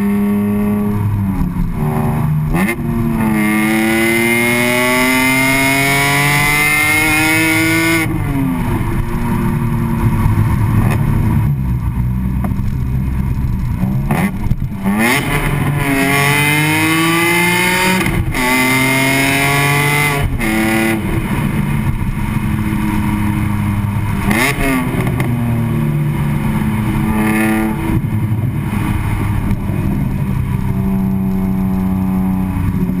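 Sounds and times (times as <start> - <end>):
car exhaust accelerating: 0.0 - 33.0.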